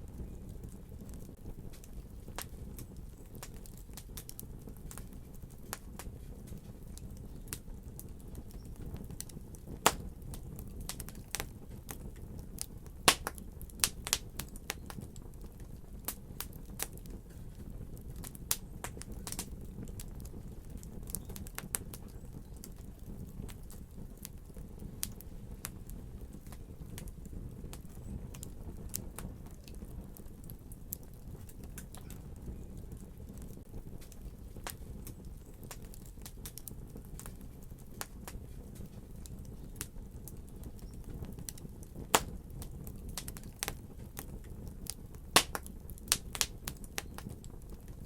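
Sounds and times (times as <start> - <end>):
wood fire crackling: 0.0 - 48.0.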